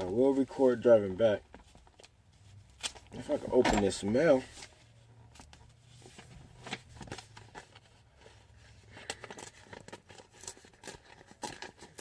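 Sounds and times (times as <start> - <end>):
paper tearing and rustling: 9.0 - 12.0.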